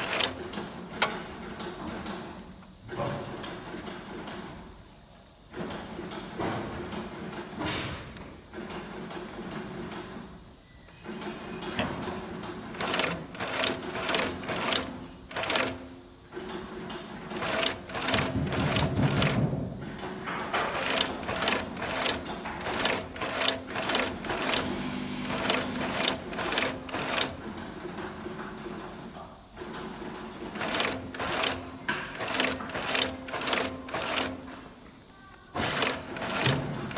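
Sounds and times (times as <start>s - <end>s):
machinery humming: 8.3s - 36.9s
sharp mechanical strokes: 12.7s - 15.9s.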